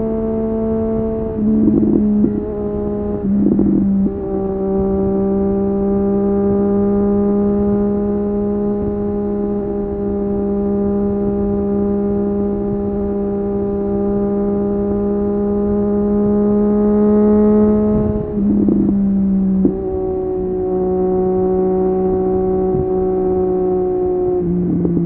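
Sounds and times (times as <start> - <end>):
motorcycle engine at steady revs: 0.0 - 25.0.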